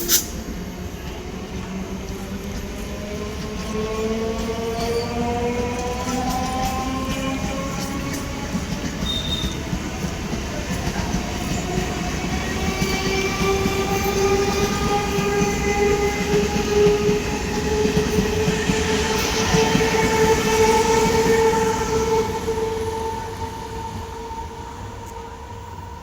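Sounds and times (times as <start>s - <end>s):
train wheels rumbling on track: 0.0s - 26.0s.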